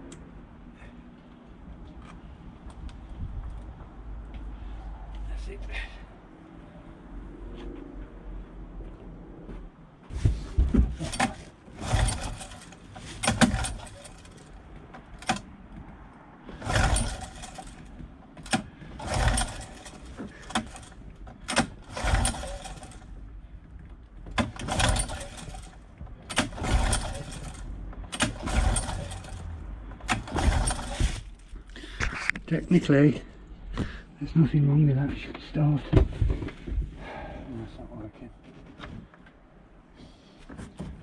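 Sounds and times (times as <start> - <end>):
engine turning over rasp: 10.1 - 15.5, 16.4 - 23.2, 24.3 - 32.2
recoil starter pulls: 10.2 - 15.5, 16.4 - 23.2, 24.2 - 32.4.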